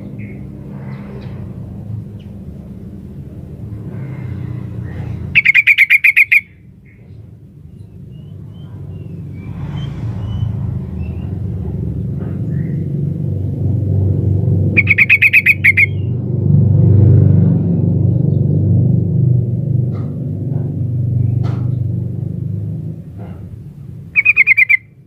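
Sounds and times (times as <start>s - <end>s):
steady low rumble: 0.0s - 5.6s, 6.5s - 24.2s
bulbul chattering call: 5.3s - 7.1s, 14.8s - 16.1s, 24.2s - 25.0s.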